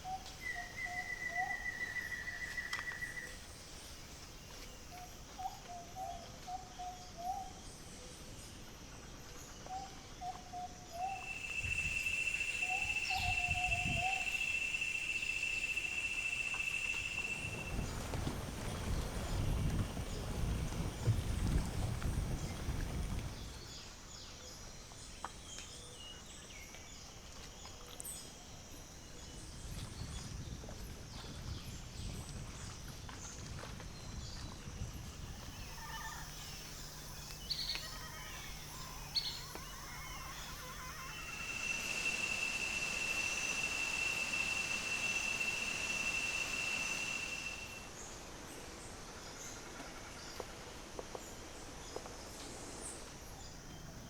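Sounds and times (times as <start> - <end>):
birds chirping and whistling: 0.1 - 3.3, 11.0 - 18.1, 35.4 - 47.8
high-pitched buzz: 35.6 - 47.8.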